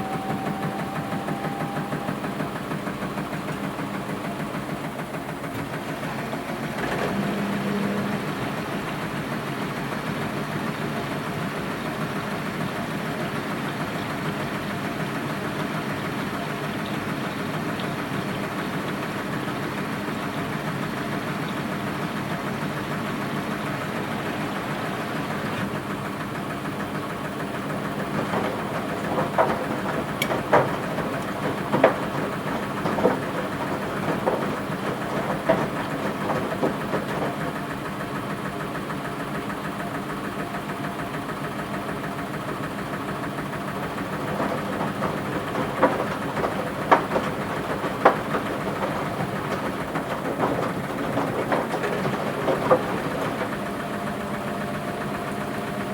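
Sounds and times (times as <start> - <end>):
washing machine motor hum: 0.0 - 55.9
knocks and clatter in drum: 26.8 - 38.9, 43.8 - 55.9.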